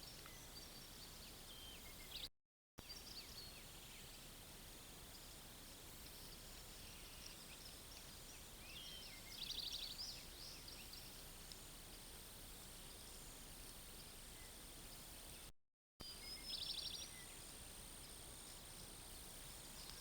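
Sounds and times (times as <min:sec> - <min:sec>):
steady hiss: 0:03.1 - 0:15.5, 0:16.2 - 0:20.0
small birds chirping: 0:05.0 - 0:12.1, 0:12.8 - 0:20.0.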